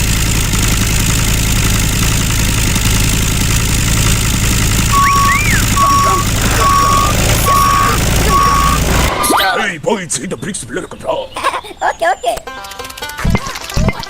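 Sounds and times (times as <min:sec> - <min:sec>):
truck engine running: 0:00.0 - 0:09.4
rising and falling tone: 0:04.9 - 0:09.2
reversing alarm beeping: 0:04.9 - 0:09.3.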